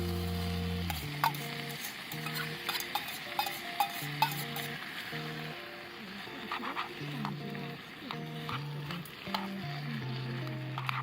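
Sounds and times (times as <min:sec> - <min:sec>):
background music of held notes: 0:00.0 - 0:11.0
onions sizzling in a pan: 0:00.0 - 0:11.0
utensil clicking against pan: 0:00.9 - 0:04.7, 0:08.1 - 0:09.6.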